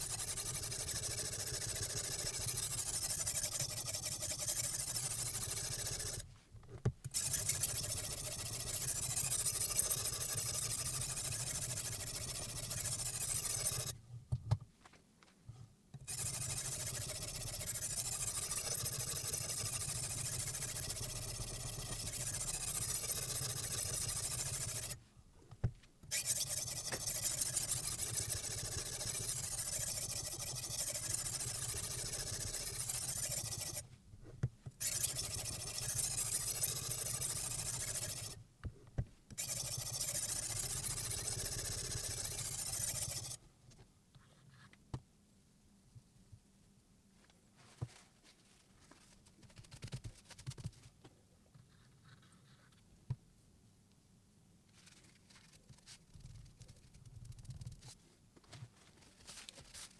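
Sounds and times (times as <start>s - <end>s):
stone scraping knife edge: 21.7s - 25.0s, 26.1s - 33.8s, 34.8s - 38.4s.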